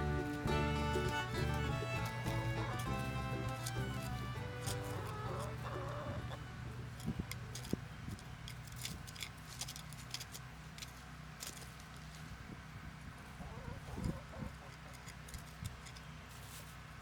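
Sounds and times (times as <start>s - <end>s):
low steady hum: 0.0s - 13.4s.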